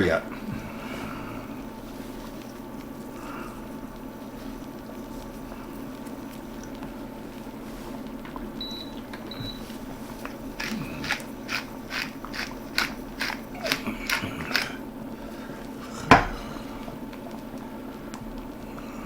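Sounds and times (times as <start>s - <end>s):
steady low hum: 0.0s - 19.0s
utensil knocking on cooking pot: 16.1s - 16.4s.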